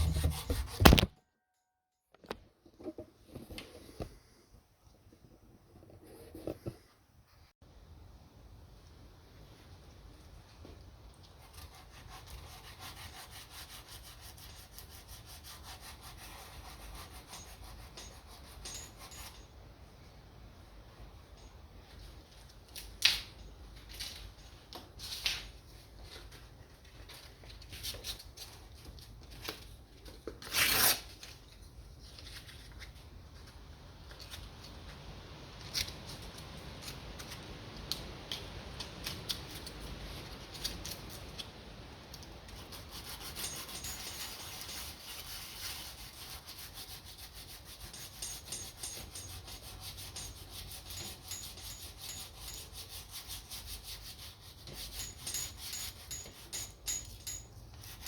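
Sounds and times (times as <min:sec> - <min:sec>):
sanding strokes on guitar finish: 0:11.7 - 0:18.6.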